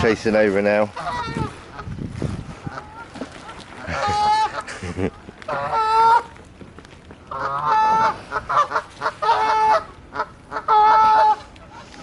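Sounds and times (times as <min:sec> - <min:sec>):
geese honking: 0:00.8 - 0:02.0, 0:02.6 - 0:06.4, 0:07.3 - 0:12.0.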